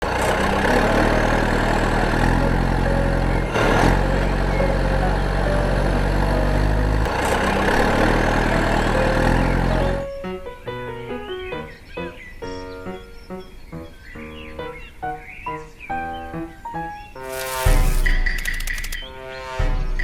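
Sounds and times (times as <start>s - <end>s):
engine running: 0.0s - 10.0s, 17.2s - 19.0s.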